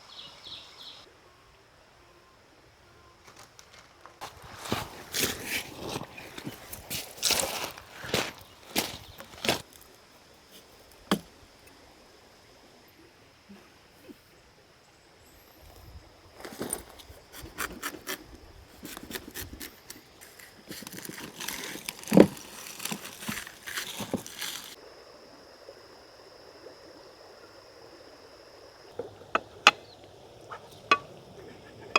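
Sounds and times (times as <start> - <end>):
camp gear knocking and clinking: 18.8 - 24.8, 29.0 - 31.4.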